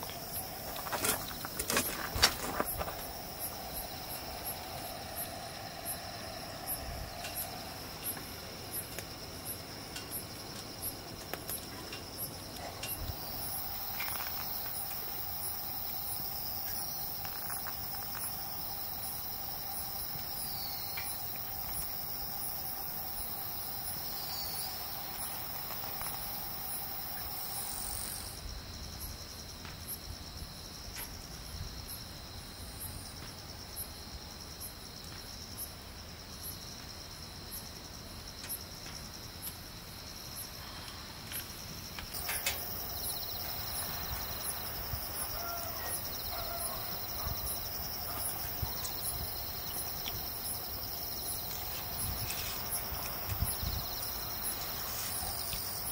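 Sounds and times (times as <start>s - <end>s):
insect ticking: 0.0s - 28.4s, 40.2s - 55.9s
insects chirring: 0.0s - 55.9s.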